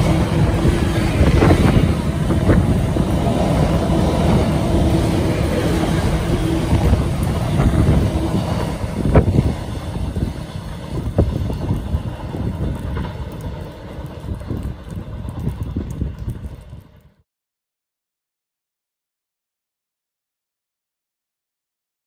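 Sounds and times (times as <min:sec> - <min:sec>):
train wheels rumbling on rails: 0:00.0 - 0:17.2.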